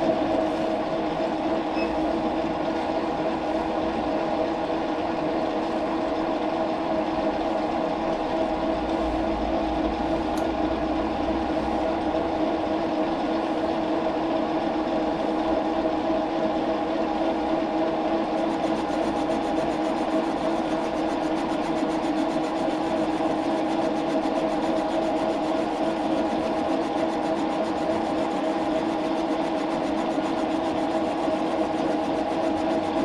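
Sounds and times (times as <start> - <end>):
shop machinery humming: 0.0 - 16.7.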